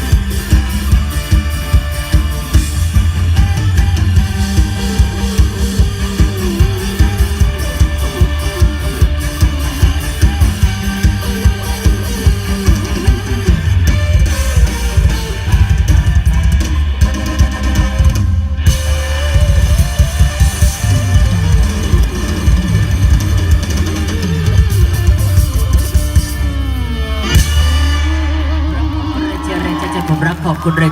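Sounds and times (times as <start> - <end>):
driving drum beat: 0.0 - 30.9
electric guitar: 0.0 - 30.9
heavy bass: 0.0 - 30.9
live band music: 0.0 - 30.9.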